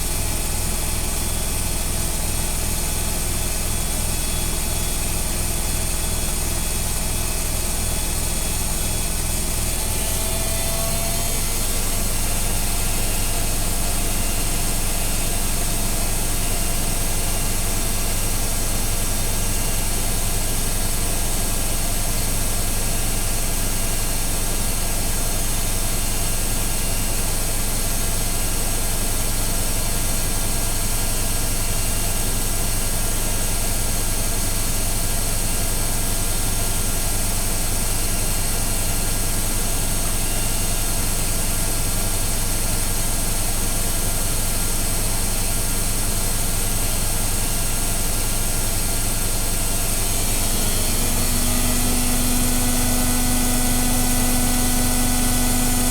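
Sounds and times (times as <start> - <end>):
washing machine spinning: 46.6 - 55.9.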